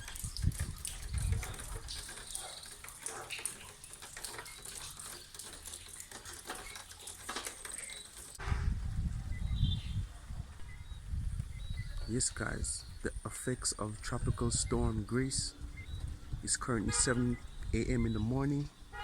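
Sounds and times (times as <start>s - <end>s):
light rain falling: 0.0s - 8.5s.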